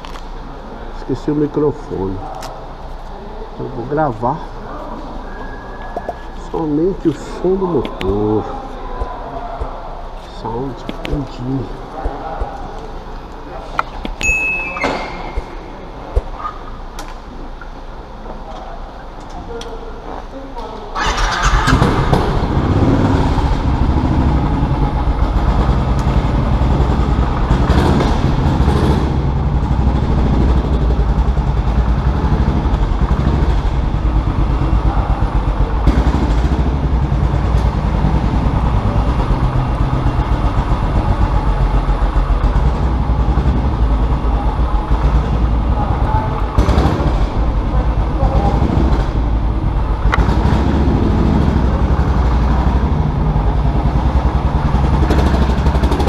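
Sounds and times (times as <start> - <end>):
motorcycle engine running: 21.0 - 56.0.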